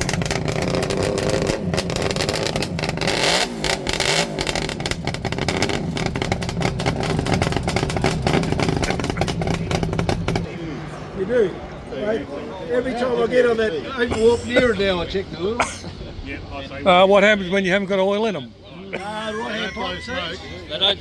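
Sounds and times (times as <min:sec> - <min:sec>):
motorcycle engine revving: 0:00.0 - 0:10.6.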